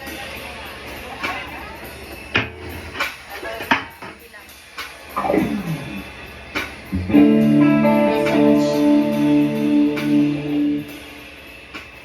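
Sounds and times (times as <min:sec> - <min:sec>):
guitar and keyboard chord ringing: 0:06.9 - 0:11.4.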